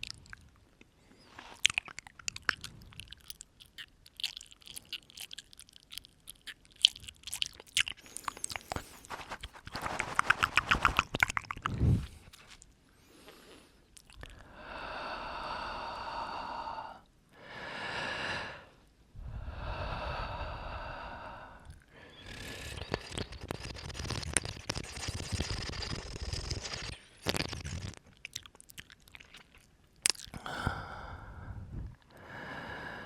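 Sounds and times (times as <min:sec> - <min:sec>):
wet mouth clicks and smacks: 0:00.0 - 0:12.7, 0:13.9 - 0:14.4, 0:21.6 - 0:30.6.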